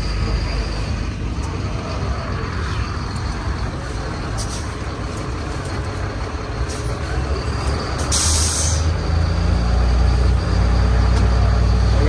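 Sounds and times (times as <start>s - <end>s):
tractor engine running: 0.0s - 12.0s
sharp hiss of air: 8.1s - 8.9s.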